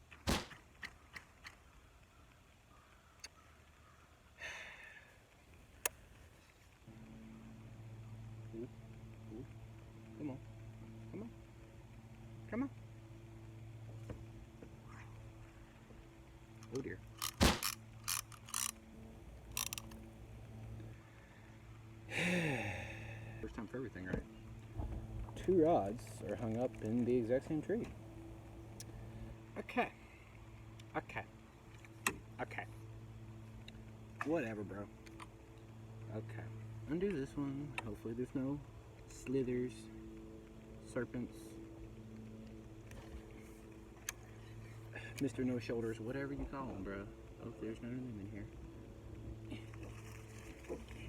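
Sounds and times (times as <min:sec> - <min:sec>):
fishing reel clicking and ratcheting: 0:16.6 - 0:18.8, 0:19.5 - 0:20.0.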